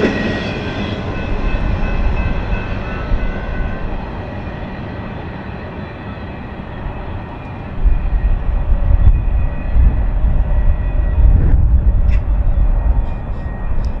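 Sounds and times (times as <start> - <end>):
train wheels rolling on rail: 0.0 - 14.0
heavy low rumble: 6.8 - 14.0.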